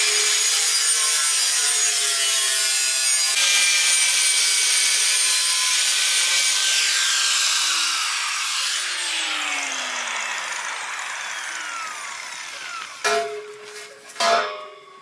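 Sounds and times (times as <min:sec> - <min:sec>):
power tool motor spinning down: 0:06.6 - 0:13.1.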